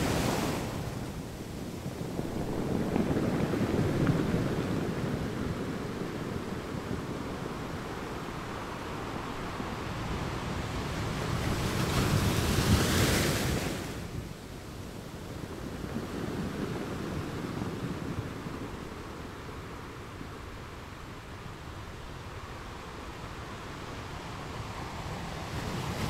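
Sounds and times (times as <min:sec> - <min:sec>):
sea waves: 0:00.0 - 0:14.2
wind: 0:00.0 - 0:26.0.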